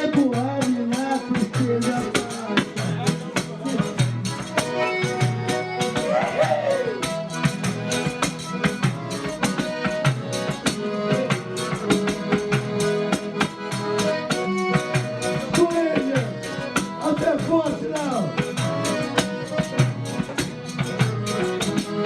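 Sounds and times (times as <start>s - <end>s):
drum and hand percussion beat: 0.0s - 22.0s
folk band playing: 0.0s - 22.0s
melody instrument holding notes: 4.7s - 22.0s.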